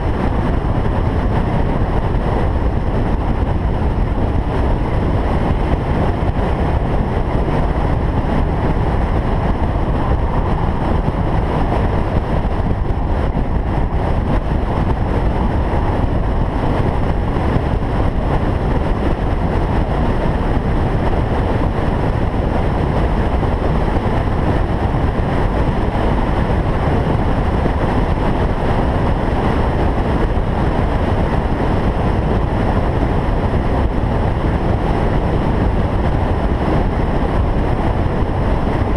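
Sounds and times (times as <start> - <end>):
car engine rumble: 0.0 - 38.9
road noise: 0.0 - 38.9.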